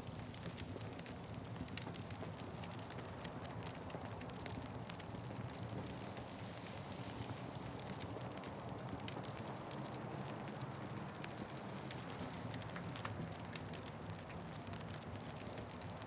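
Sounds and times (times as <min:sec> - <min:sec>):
fire popping and snapping: 0:07.3 - 0:16.0.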